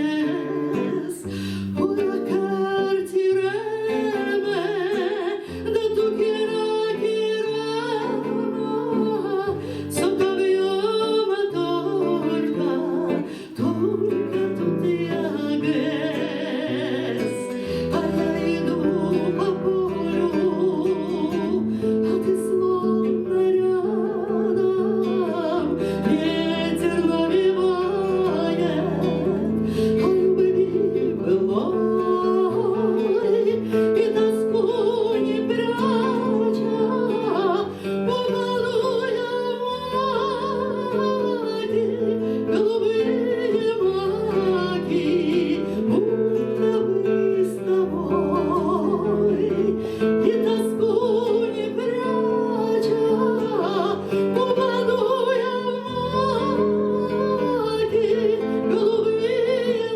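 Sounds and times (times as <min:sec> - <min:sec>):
acoustic guitar: 0:00.0 - 0:59.9
person singing with vibrato: 0:00.0 - 0:59.9.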